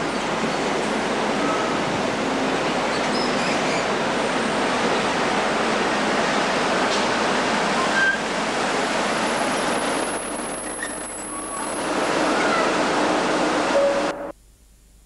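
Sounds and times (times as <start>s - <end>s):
train rolling rushing noise: 0.0s - 14.3s
brake squeals: 7.8s - 8.3s, 10.5s - 12.7s.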